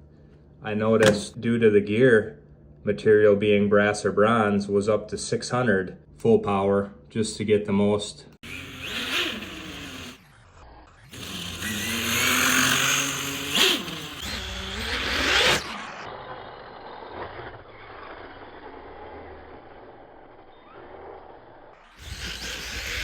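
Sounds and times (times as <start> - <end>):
rc truck motor whine: 8.4 - 23.0.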